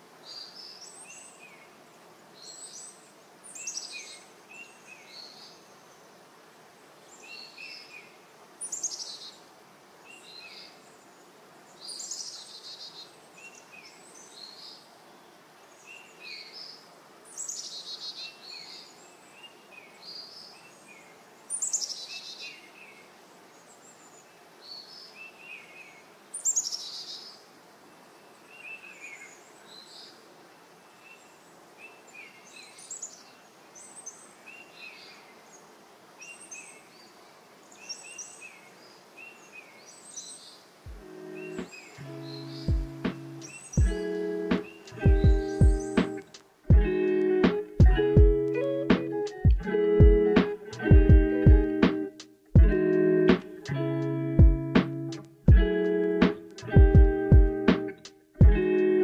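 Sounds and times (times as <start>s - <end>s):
faint steady background noise: 0.0s - 59.0s.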